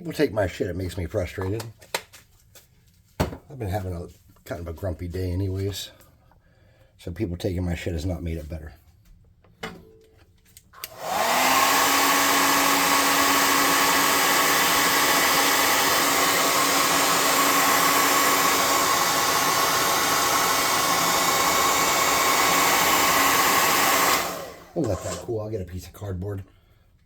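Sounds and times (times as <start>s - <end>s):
hair dryer switch clicks: 10.8s - 11.8s
hair dryer running with whine: 10.8s - 25.3s.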